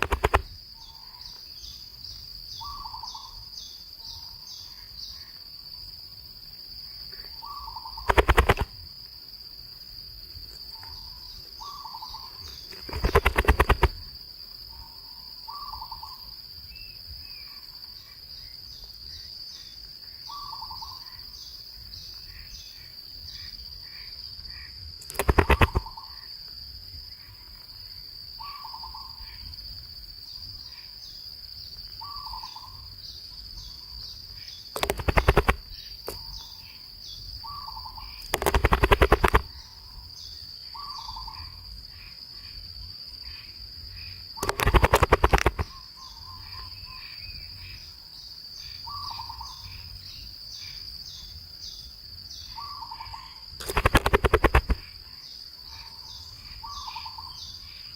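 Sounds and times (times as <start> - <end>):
rapid rattling: 0.0 - 0.5, 8.1 - 8.7, 12.7 - 14.1, 25.1 - 25.8, 34.8 - 35.6, 38.3 - 39.5, 44.4 - 45.7, 53.6 - 54.8.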